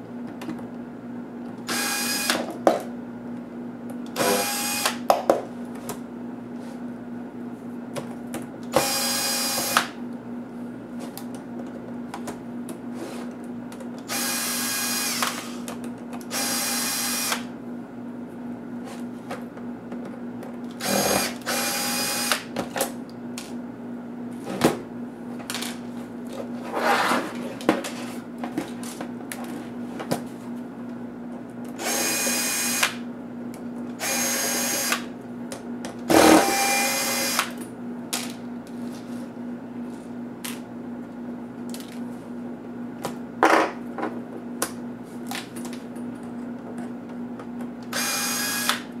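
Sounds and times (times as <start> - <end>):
electric screwdriver whining: 1.7 - 2.4, 4.2 - 5.0, 8.7 - 9.9, 14.1 - 15.6, 16.3 - 17.5, 20.8 - 22.5, 31.8 - 33.0, 34.0 - 35.1, 36.1 - 37.5, 47.9 - 48.9.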